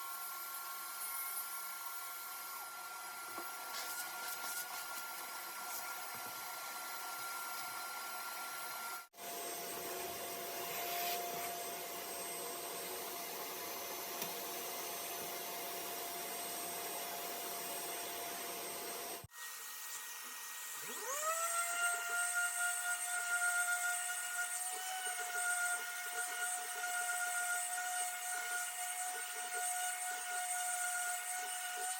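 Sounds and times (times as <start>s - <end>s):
power tool motor whining: 0.1s - 31.9s.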